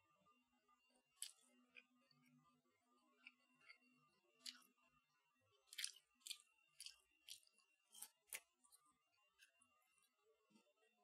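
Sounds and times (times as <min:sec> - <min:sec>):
chewing crunchy food: 0:01.1 - 0:02.4, 0:03.1 - 0:04.8, 0:05.5 - 0:09.7.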